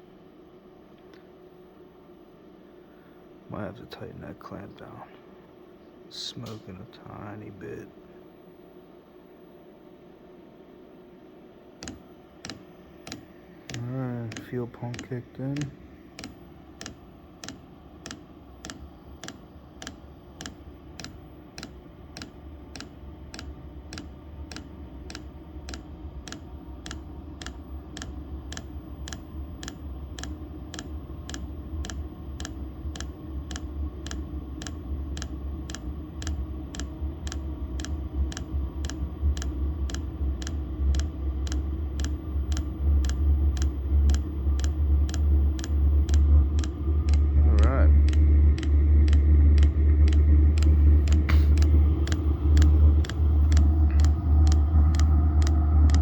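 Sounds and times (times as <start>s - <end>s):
heater low rumble: 11.9s - 56.0s
fuel pump ticking: 31.3s - 47.3s.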